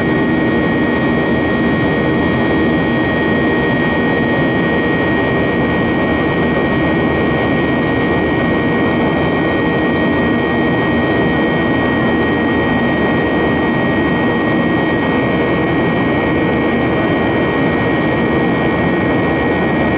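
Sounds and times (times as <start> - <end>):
jet cabin engine and airflow noise: 0.0 - 19.9.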